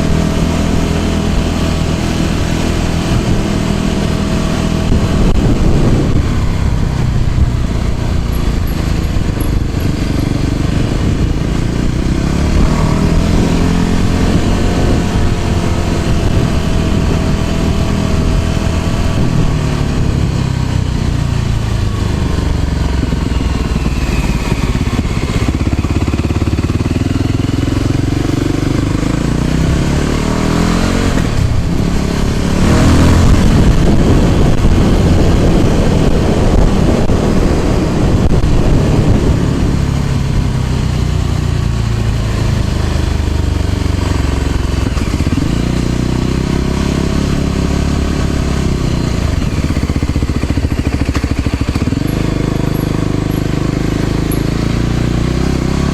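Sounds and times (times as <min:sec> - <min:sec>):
loud rushing noise: 0:00.0 - 0:20.2, 0:29.2 - 0:40.6
motor scooter engine running: 0:00.0 - 0:55.9.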